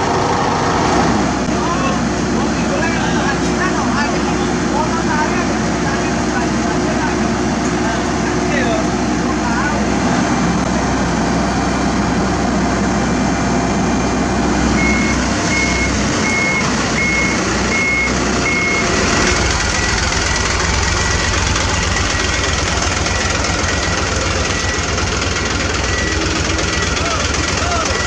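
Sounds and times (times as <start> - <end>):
heavy machinery running: 0.0 - 28.0
lower-pitched beeping: 14.8 - 28.0
reversing alarm beeping: 14.8 - 28.0.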